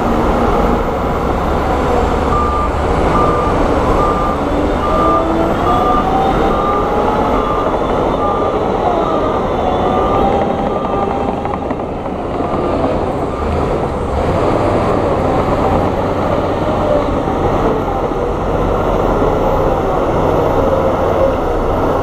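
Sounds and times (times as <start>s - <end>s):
wavering whine: 0.0s - 14.1s
diesel engine din: 0.0s - 22.0s
reversing alarm beeps: 1.0s - 11.7s.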